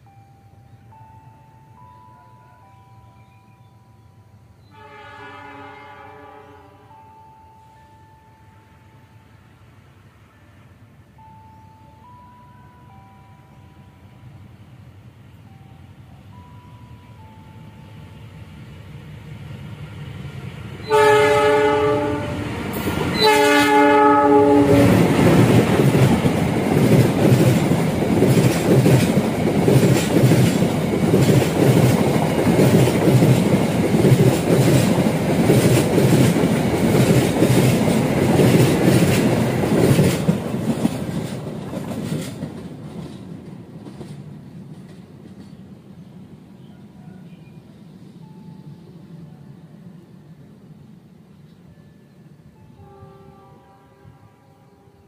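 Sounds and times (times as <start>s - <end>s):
diesel locomotive approaching: 0.0s - 55.0s
train horn blasts: 4.6s - 7.0s, 20.8s - 25.2s, 51.7s - 55.0s
clickety-clack of train wheels: 24.6s - 46.0s.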